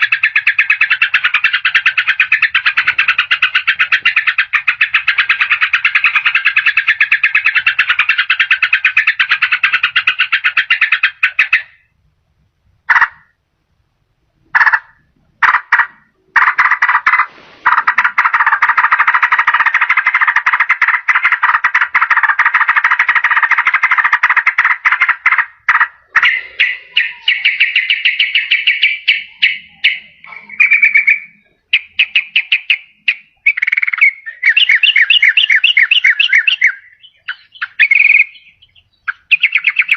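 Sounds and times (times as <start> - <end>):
bird singing rattling trills: 0.0 - 11.8, 26.0 - 39.9.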